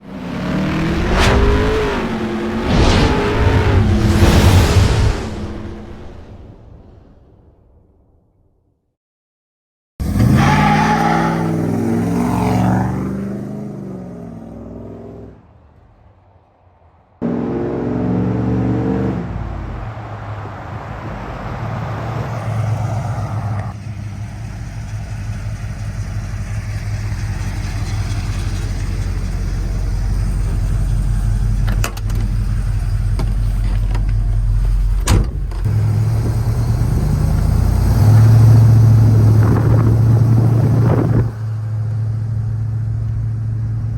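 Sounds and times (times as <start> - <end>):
truck engine droning: 17.2 - 43.9.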